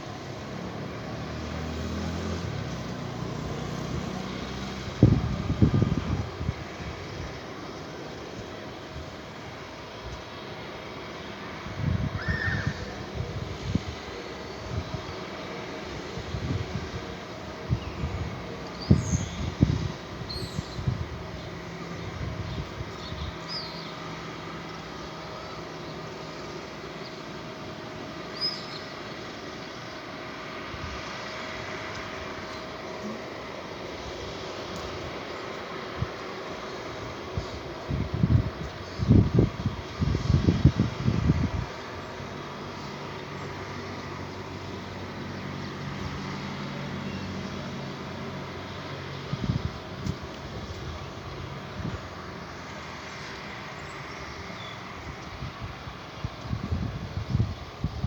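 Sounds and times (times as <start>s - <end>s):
low mechanical hum: 0.0s - 58.0s
small birds chirping: 17.8s - 27.5s, 28.2s - 30.2s, 41.8s - 58.0s.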